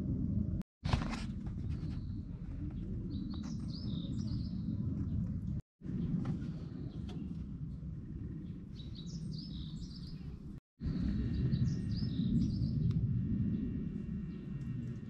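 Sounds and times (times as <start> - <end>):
low outdoor rumble: 0.0 - 15.0
small birds chirping: 1.6 - 15.0.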